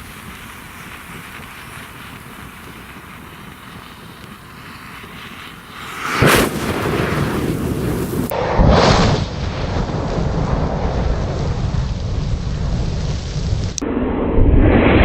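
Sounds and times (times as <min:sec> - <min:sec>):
matches burning with a hiss: 0:00.0 - 0:08.3, 0:11.3 - 0:13.8
loud whoosh of flaring fire: 0:00.0 - 0:15.0.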